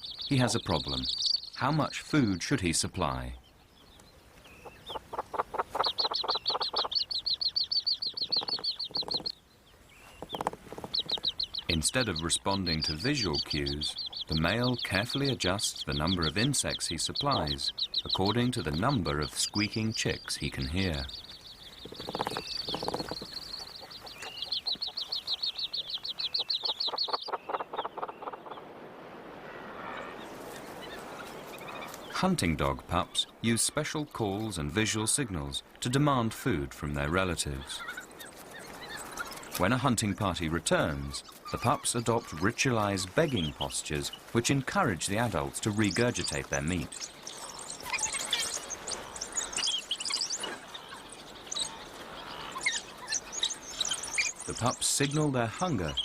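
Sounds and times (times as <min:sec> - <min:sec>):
chicks squeaking: 0:00.0 - 0:01.9, 0:04.5 - 0:09.3, 0:10.0 - 0:28.6, 0:37.0 - 0:56.0.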